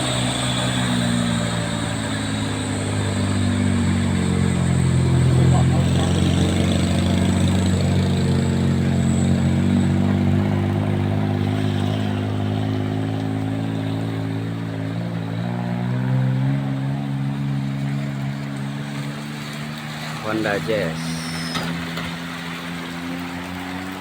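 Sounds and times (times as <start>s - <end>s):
vehicle engine pulling uphill: 0.0s - 24.0s
heavy rain hiss: 20.2s - 21.9s.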